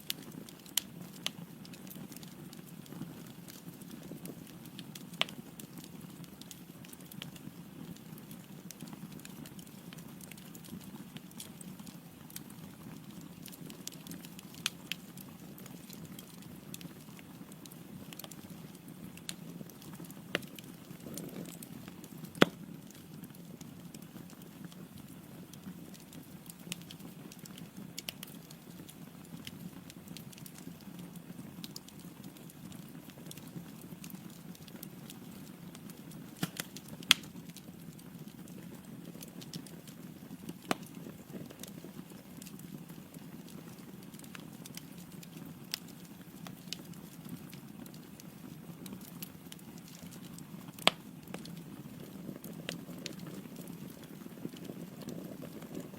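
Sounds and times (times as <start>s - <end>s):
fire crackling and popping: 0.0s - 55.9s
low rush of flame: 19.9s - 22.5s.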